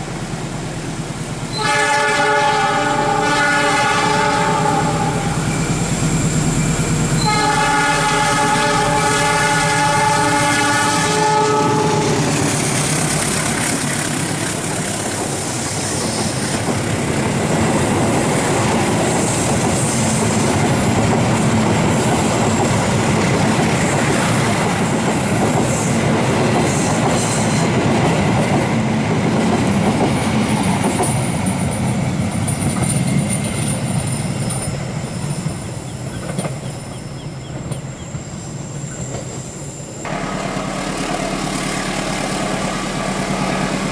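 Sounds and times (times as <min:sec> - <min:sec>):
train passing at speed: 0:00.0 - 0:43.9
train horn: 0:01.5 - 0:05.7, 0:07.2 - 0:12.4, 0:40.1 - 0:43.9
wheels clacking over rail joints: 0:11.9 - 0:38.2.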